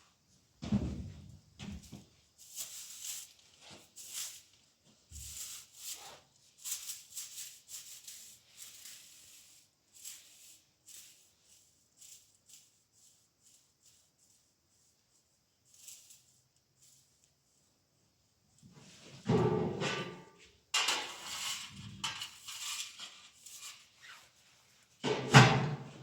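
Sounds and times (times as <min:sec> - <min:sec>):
rustling or scraping noises: 0:00.8 - 0:26.0.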